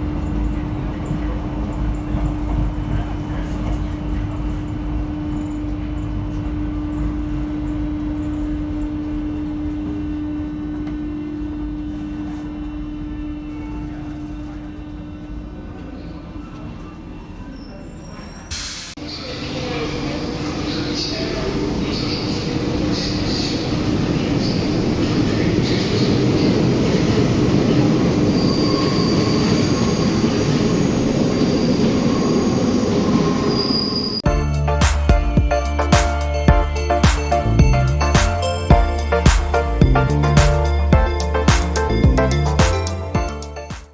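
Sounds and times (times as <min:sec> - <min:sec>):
train wheels rumbling on rail: 0:00.0 - 0:19.0
train rumbling on rails: 0:00.0 - 0:43.9
high-pitched wheel squeal: 0:28.2 - 0:39.3.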